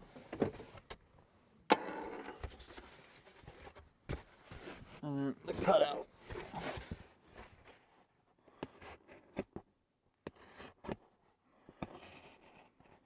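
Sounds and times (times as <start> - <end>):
scratchy styrofoam cutting: 5.5 - 7.0.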